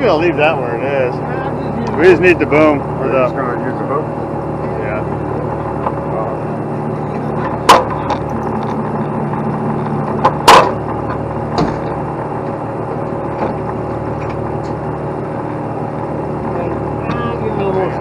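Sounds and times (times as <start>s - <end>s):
diesel truck engine running: 0.0s - 18.0s
sharp knocks: 11.5s - 11.9s.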